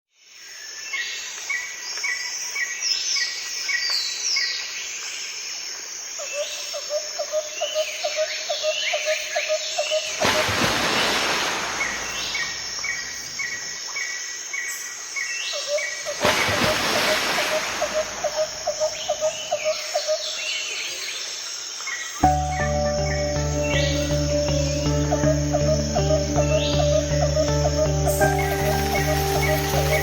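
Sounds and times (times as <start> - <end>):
songbirds chirping: 10.8 - 30.0.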